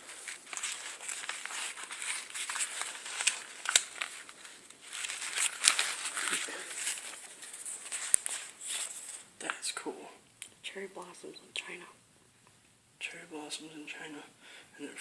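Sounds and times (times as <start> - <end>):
paper rustling and crinkling: 0.0 - 9.3.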